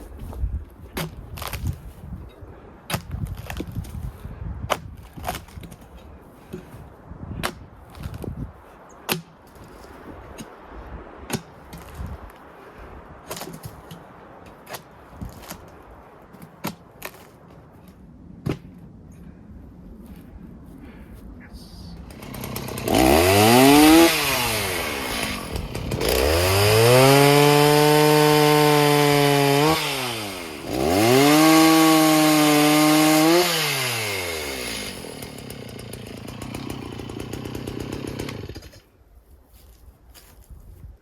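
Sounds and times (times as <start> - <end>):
bark stripped off log: 0.9 - 1.8, 2.9 - 4.0, 4.7 - 6.7.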